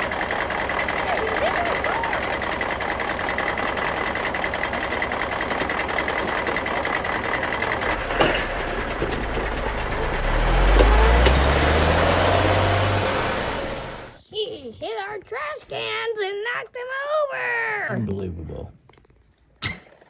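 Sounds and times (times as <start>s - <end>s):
garbage truck engine running: 0.0s - 14.2s.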